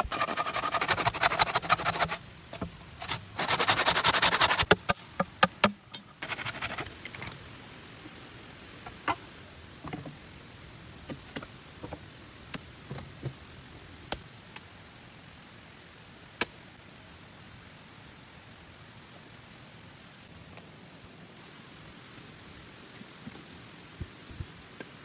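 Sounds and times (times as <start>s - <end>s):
sharp knocks and clicks: 0.0s - 7.4s
rain hiss: 0.0s - 25.0s.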